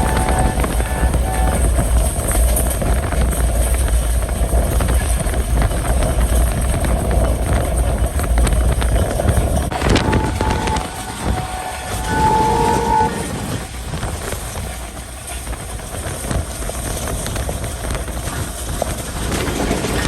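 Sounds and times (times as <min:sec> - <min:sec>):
short train horn: 0:00.0 - 0:02.0, 0:09.7 - 0:14.7
train rumbling on track: 0:00.0 - 0:20.0.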